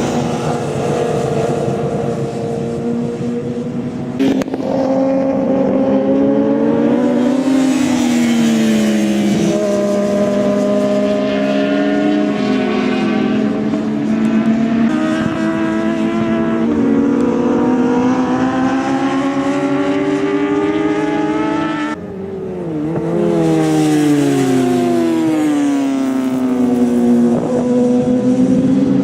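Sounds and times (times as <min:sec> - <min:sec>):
racing motorcycle engines revving: 0:00.0 - 0:29.0.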